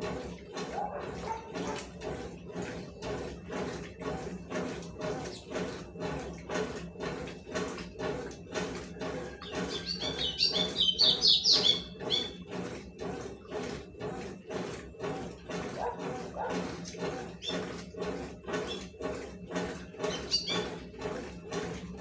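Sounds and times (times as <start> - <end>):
washing machine agitating: 0.0 - 22.0
water sloshing: 0.0 - 22.0
bird chirping: 9.8 - 12.3.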